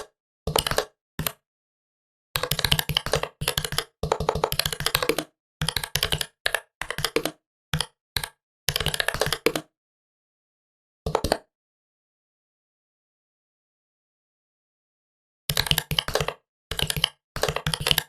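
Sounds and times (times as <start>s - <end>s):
laptop keyboard typing: 0.5s - 1.4s, 2.4s - 9.7s, 15.5s - 18.0s.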